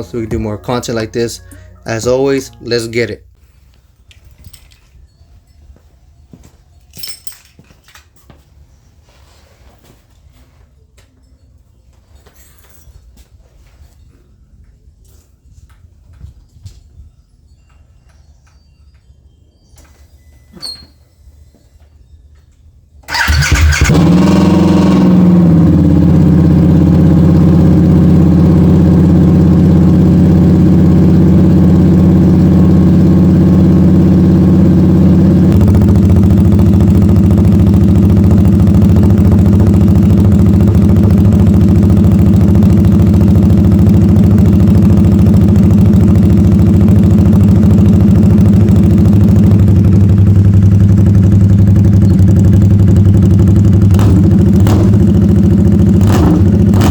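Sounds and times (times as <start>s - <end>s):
motorcycle engine idling: 23.1s - 56.9s.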